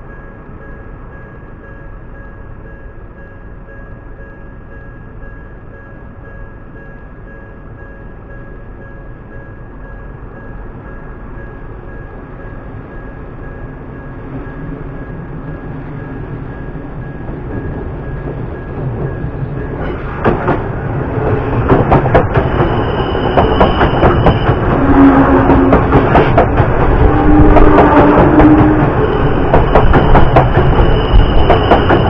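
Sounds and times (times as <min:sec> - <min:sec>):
electric train passing: 0:00.0 - 0:32.0
train wheels clacking over rail joints: 0:17.3 - 0:32.0.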